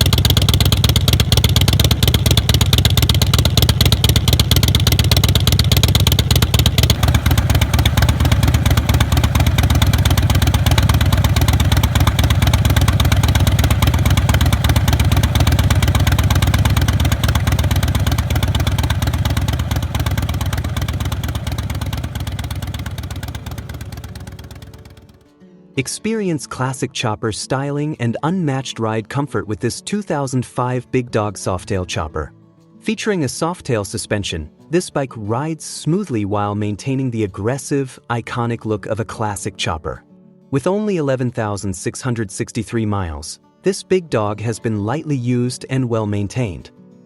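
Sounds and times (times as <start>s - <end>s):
motorcycle engine idling: 0.0s - 25.2s.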